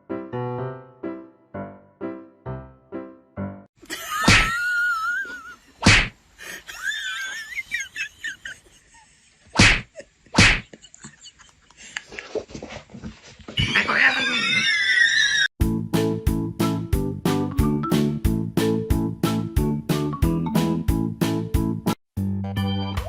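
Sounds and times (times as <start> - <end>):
piano notes: 0.0 - 3.7
loud whacks: 4.2 - 4.5, 5.8 - 6.2, 9.6 - 10.7.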